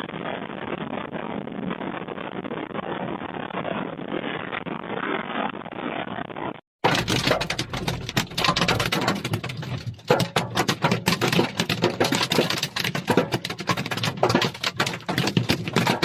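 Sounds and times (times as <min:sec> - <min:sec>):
rain pattering on hard surface: 0:06.9 - 0:16.0.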